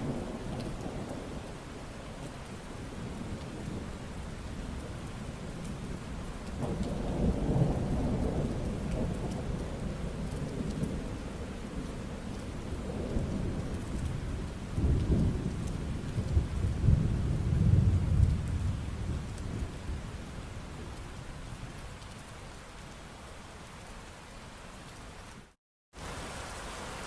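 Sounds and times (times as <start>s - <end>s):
steady rain: 0.0s - 27.0s
rolling thunder: 2.9s - 21.7s.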